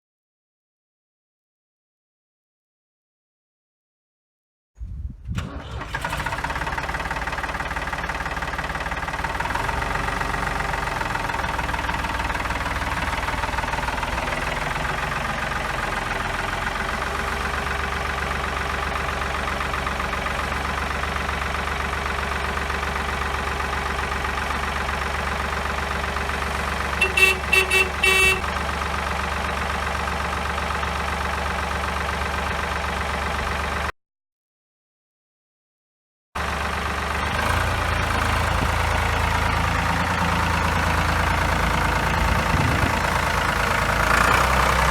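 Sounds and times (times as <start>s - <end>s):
tractor engine starting and idling: 5.3s - 33.9s, 36.4s - 44.9s
quick horn beeps: 27.0s - 28.5s.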